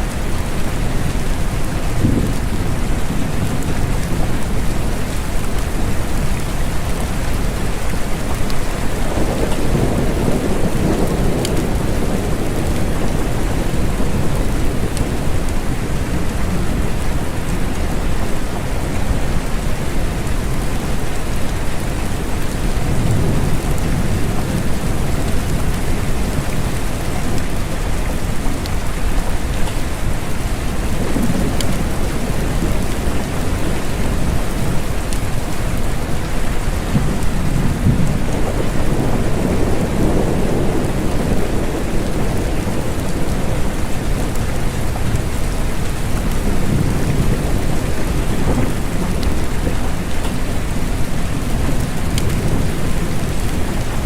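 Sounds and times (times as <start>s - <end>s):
steady rain falling: 0.0s - 54.0s
deep low thunder rumble: 0.7s - 4.7s, 36.8s - 54.0s.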